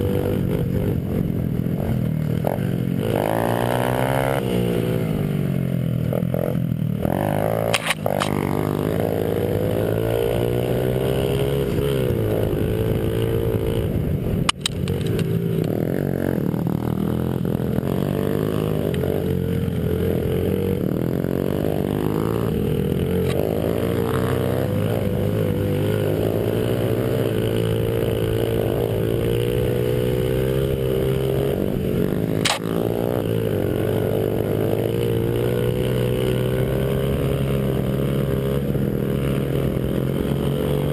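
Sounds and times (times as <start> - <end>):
small motorbike engine revving: 0.0 - 40.9
sharp clicks: 7.7 - 8.4, 14.4 - 15.8, 32.4 - 32.7.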